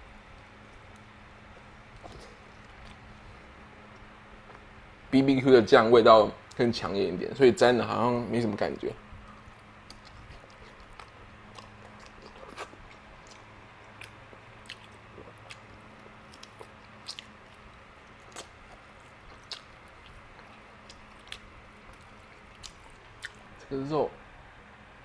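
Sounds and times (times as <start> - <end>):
man biting and chewing meat: 0.2 - 4.9, 8.4 - 23.7
sharp wet mouth clicks: 19.4 - 21.4.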